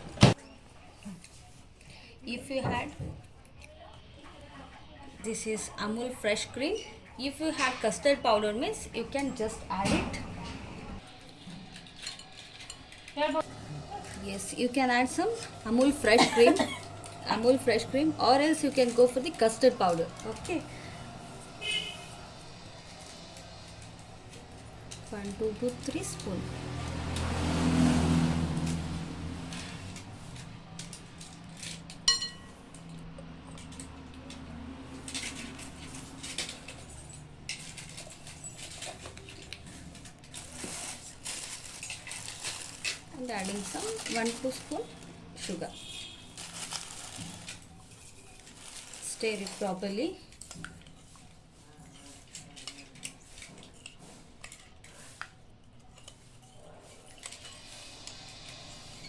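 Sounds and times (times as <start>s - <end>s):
spoon clinking on bowl: 32.0s - 32.5s.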